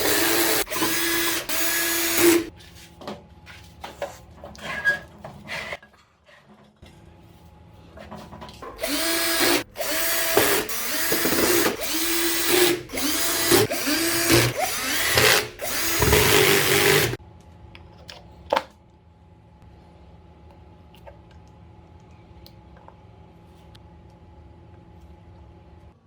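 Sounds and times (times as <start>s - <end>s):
power drill whirring: 0.0s - 2.5s, 8.8s - 17.2s.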